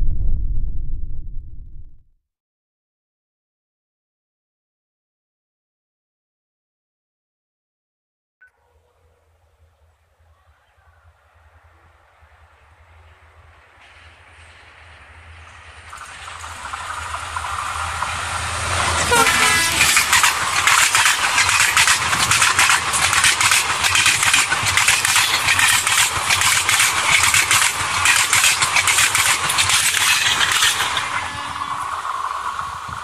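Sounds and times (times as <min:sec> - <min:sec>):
locomotive passing: 0:08.8 - 0:33.0
coach wheels clattering over rails: 0:12.1 - 0:33.0.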